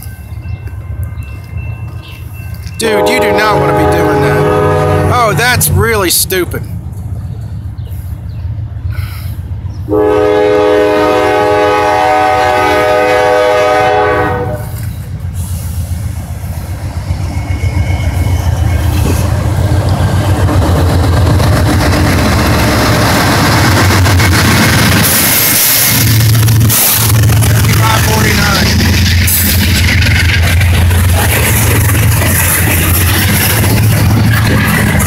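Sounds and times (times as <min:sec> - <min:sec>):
locomotive engine rumble: 0:00.0 - 0:35.0
train wheels on rails: 0:00.0 - 0:35.0
locomotive air horn: 0:02.9 - 0:05.3, 0:09.9 - 0:14.8.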